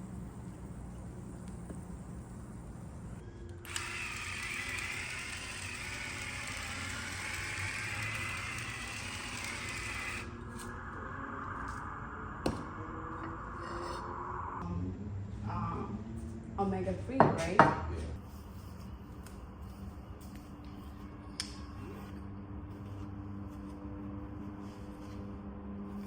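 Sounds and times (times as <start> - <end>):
electric motor whining: 3.6 - 10.8.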